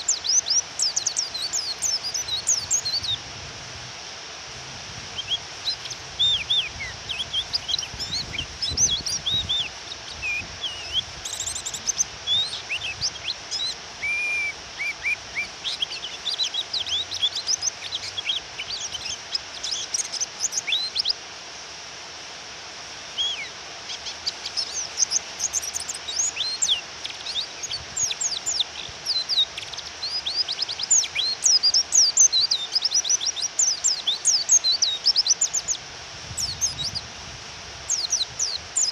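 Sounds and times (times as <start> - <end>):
bird chirping twitters: 0.0 - 3.2, 5.2 - 21.2, 23.2 - 35.8, 37.9 - 38.9
rain hissing: 0.0 - 38.9.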